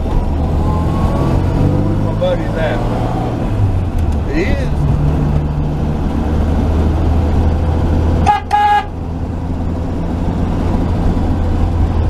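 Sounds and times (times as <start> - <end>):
truck engine running: 0.0 - 12.0
horn toots: 8.2 - 9.0.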